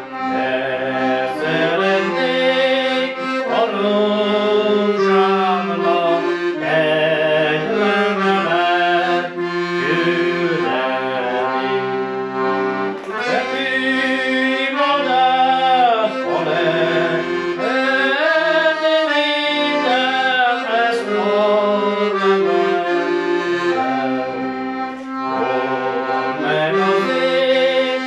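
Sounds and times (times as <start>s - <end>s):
accordion folk tune: 0.0s - 28.0s.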